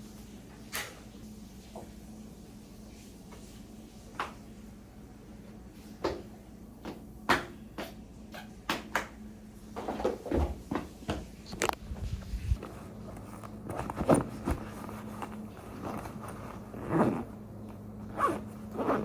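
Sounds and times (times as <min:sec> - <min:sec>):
steady low hum: 0:11.4 - 0:19.0
handling clicks and knocks: 0:12.6 - 0:19.0.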